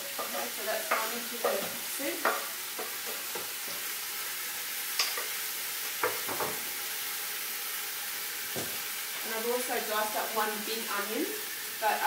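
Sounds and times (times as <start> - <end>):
food sizzling in oil: 0.0 - 12.0
utensils knocking on chopping board: 6.0 - 6.6.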